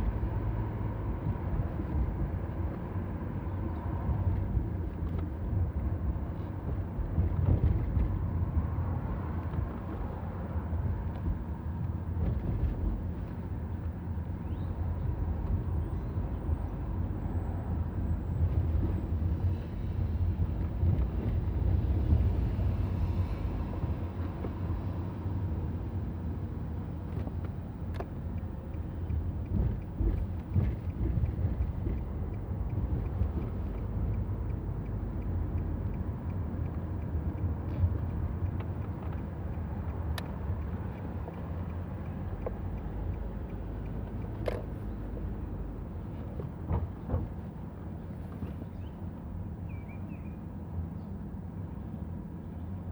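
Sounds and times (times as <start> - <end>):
wind and road noise rumble: 0.0 - 52.9
faint clicks: 27.1 - 47.3.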